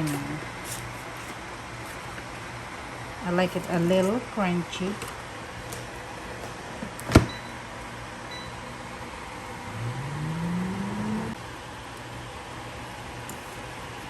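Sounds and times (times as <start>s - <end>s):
air fryer humming: 0.0s - 14.0s
rising whine: 8.9s - 11.4s.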